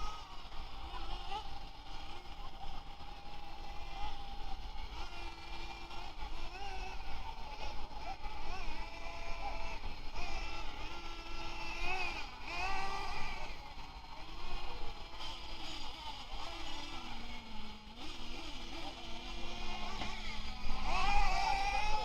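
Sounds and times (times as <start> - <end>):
toy truck electric motor whining: 0.0 - 22.0.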